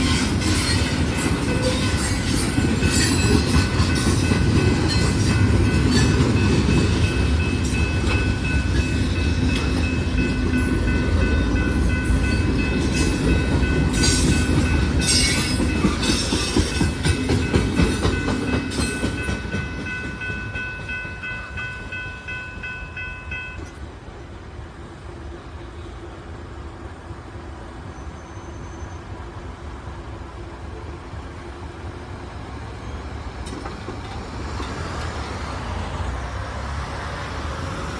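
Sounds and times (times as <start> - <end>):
freight train wheels rumbling: 0.0 - 37.9
high ringing tone: 0.6 - 23.8.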